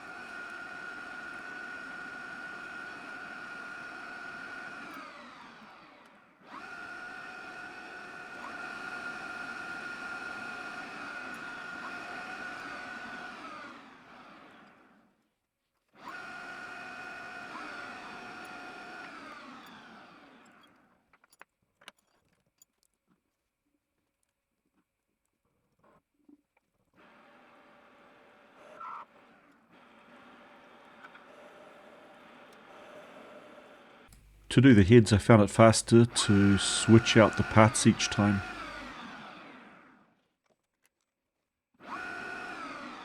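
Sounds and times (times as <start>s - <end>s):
lathe spindle whining: 0.0s - 14.5s, 35.9s - 39.6s.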